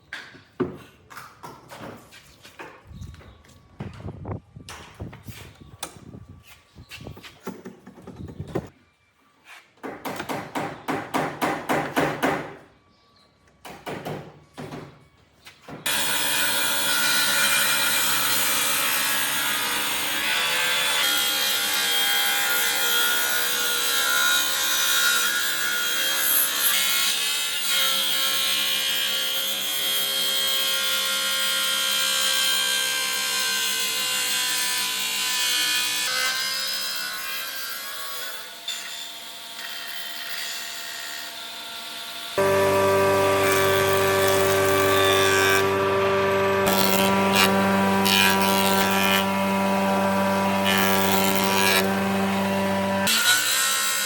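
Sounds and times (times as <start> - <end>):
power tool on wood: 15.8 - 54.0.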